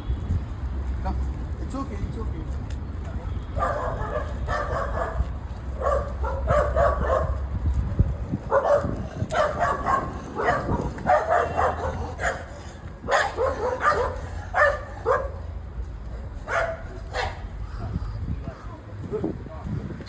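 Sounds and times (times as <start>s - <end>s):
dog barking: 3.1s - 7.4s, 8.4s - 15.5s, 16.4s - 17.5s.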